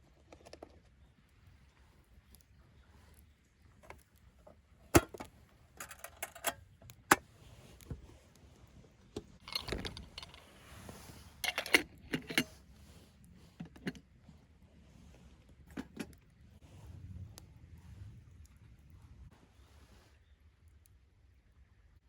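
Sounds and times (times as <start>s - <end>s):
small metal items clinking: 5.8s - 6.6s, 9.4s - 10.8s, 11.4s - 12.5s.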